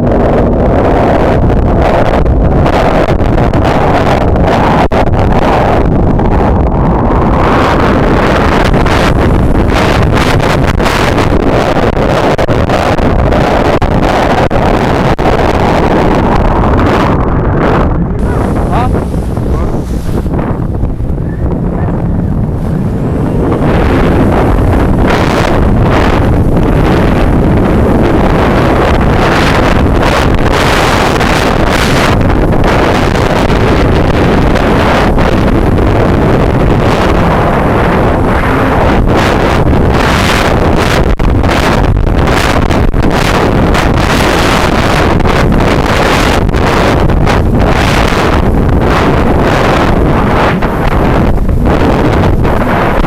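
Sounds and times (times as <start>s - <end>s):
jet ski engine running: 0.0s - 17.1s, 18.1s - 53.0s
wind buffeting microphone: 0.0s - 53.0s
water rushing: 7.2s - 13.5s, 18.2s - 41.7s.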